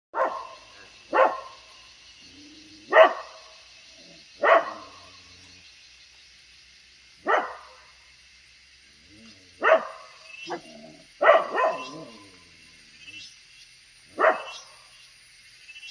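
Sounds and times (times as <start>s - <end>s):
dog barking: 0.1s - 1.6s, 2.9s - 3.5s, 4.4s - 5.0s, 7.2s - 7.9s, 9.6s - 12.3s, 14.2s - 14.6s
steady high hiss: 0.2s - 15.9s.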